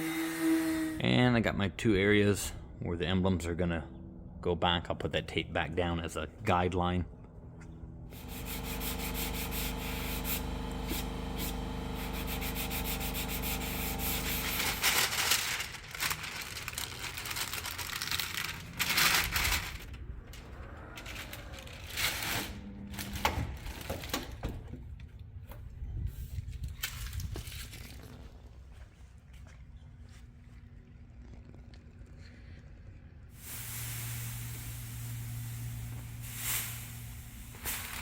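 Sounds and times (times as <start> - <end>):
power sander running: 8.1 - 15.4
hand sanding and rubbing: 8.1 - 15.6.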